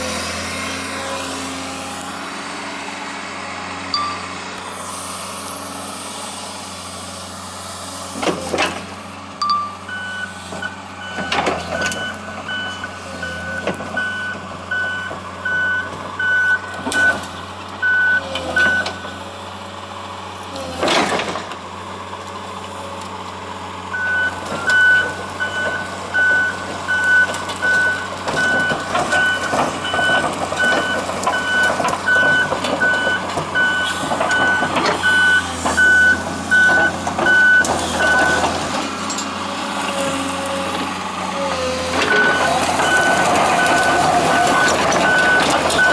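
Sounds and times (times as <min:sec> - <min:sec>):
diesel engine running: 0:00.0 - 0:45.9
excavator travel alarm beeping: 0:03.9 - 0:04.5, 0:09.4 - 0:19.2, 0:23.9 - 0:39.3, 0:41.8 - 0:45.9.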